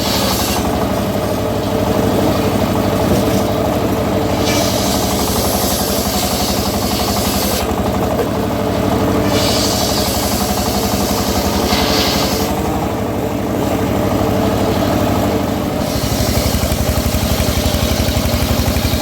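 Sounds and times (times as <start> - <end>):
saw blade cutting wood hiss: 0.0 - 0.8, 4.4 - 7.7, 9.2 - 12.7, 15.8 - 16.8
sawmill engine running: 0.0 - 19.0.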